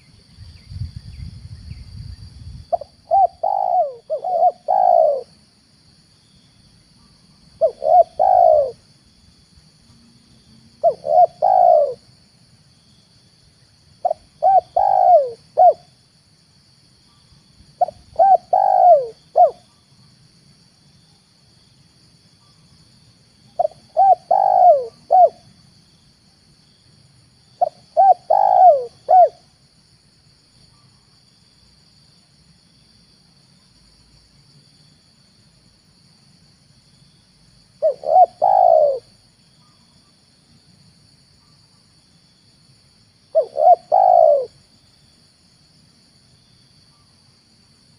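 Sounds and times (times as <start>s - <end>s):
dove cooing: 2.7s - 5.3s, 7.6s - 8.8s, 10.8s - 12.1s, 14.0s - 15.9s, 17.8s - 19.7s, 23.6s - 25.5s, 27.6s - 29.5s, 37.8s - 39.8s, 43.3s - 44.6s.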